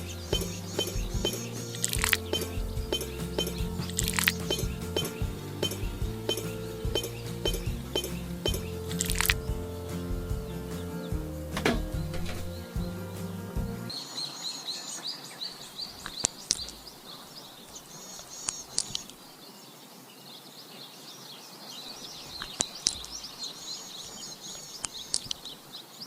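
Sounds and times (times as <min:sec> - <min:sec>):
music: 0:00.0 - 0:14.0
small birds chirping: 0:00.0 - 0:26.0.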